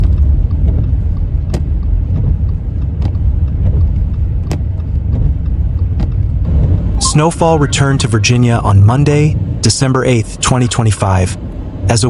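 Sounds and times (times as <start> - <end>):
sharp clicks: 0.0 - 6.5
road and engine rumble: 0.0 - 12.0.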